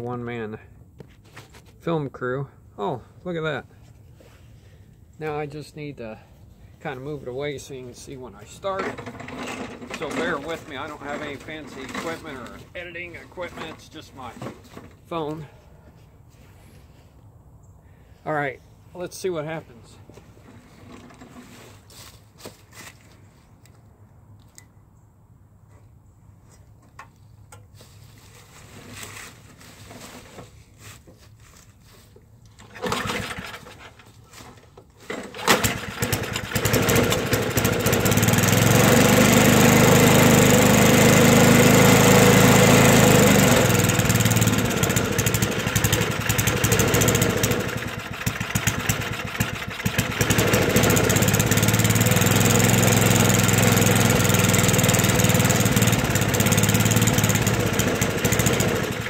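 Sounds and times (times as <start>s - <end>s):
snowblower engine pull-started: 8.3s - 15.0s, 20.4s - 21.8s, 32.6s - 59.0s.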